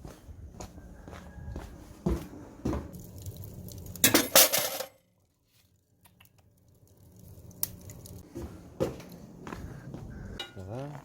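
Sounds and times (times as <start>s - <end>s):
dishes and utensils clattering: 4.0s - 5.0s.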